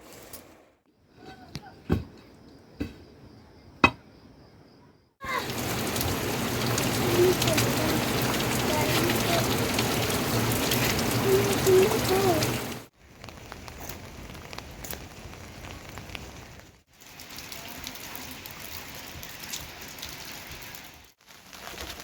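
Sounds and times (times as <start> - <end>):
steady rain falling: 5.2 - 22.0.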